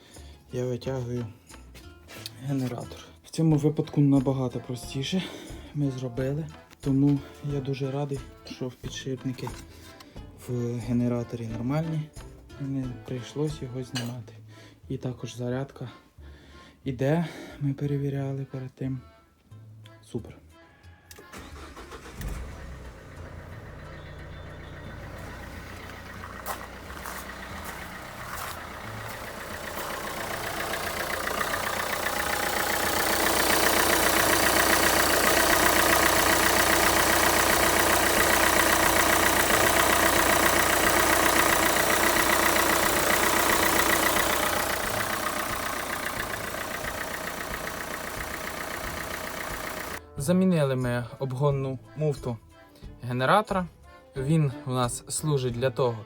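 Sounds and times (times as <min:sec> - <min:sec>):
diesel engine idling: 0:21.3 - 0:50.0.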